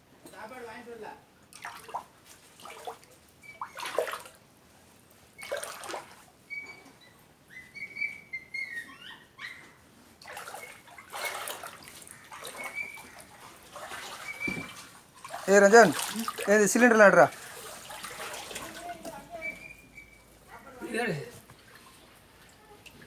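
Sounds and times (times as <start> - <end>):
floodwater splashing and sloshing: 1.5 - 6.4, 10.1 - 20.4, 21.1 - 23.0.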